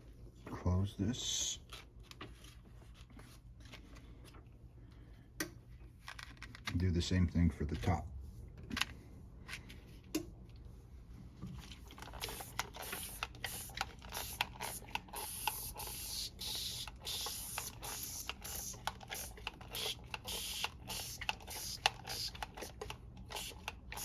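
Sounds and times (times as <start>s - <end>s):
spray bottle spritzing: 12.0s - 24.0s.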